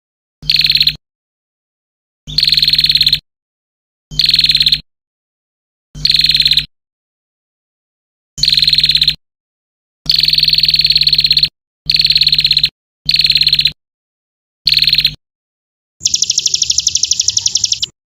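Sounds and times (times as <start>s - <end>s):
buzzy pulsed bird trill: 0.4s - 1.0s, 2.3s - 3.2s, 4.1s - 4.8s, 6.0s - 6.7s, 8.4s - 9.2s, 10.1s - 13.8s, 14.7s - 15.2s, 16.0s - 18.0s.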